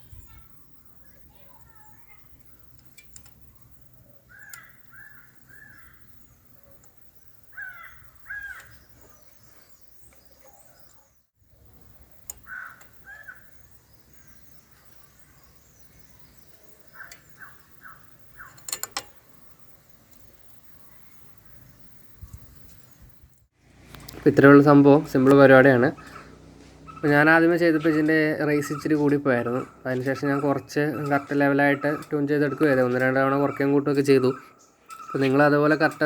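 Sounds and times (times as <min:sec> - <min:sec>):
sharp clicks: 0:02.5 - 0:04.9, 0:12.1 - 0:13.1, 0:16.8 - 0:20.4
crow cawing: 0:04.3 - 0:06.1, 0:07.5 - 0:08.9, 0:12.4 - 0:13.6, 0:25.9 - 0:28.0.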